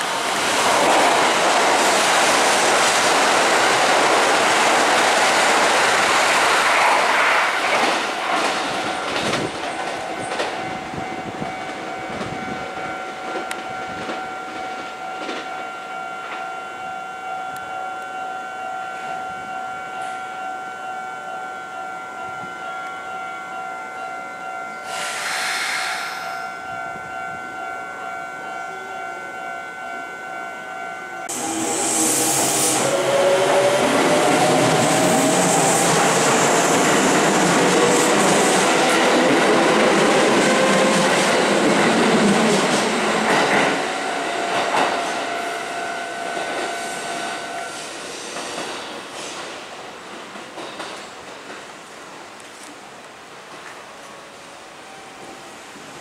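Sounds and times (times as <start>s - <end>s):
electric train passing: 0.0s - 56.0s
steady electronic warning tone: 8.6s - 41.3s, 41.9s - 47.9s.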